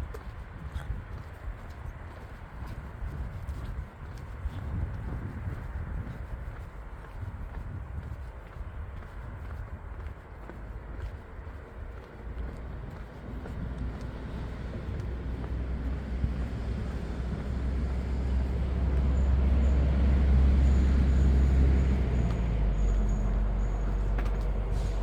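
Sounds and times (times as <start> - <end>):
vehicle passing by: 13.7 - 25.0.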